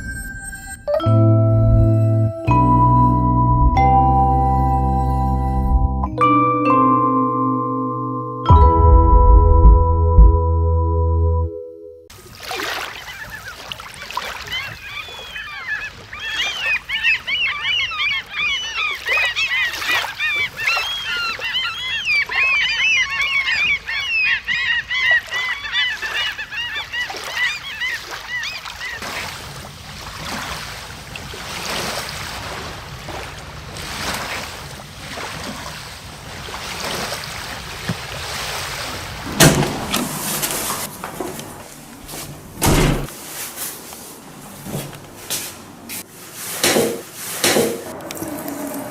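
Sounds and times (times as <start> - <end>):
gulls calling: 12.5 - 43.2
sharp knock: 46.6 - 47.8.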